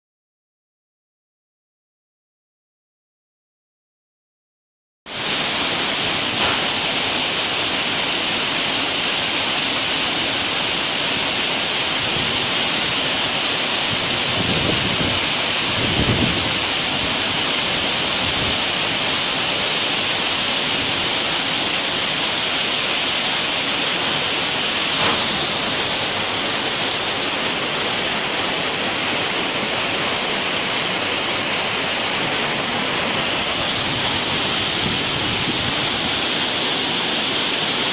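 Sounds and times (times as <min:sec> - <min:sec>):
rushing water from outflow channel: 0:05.1 - 0:37.9.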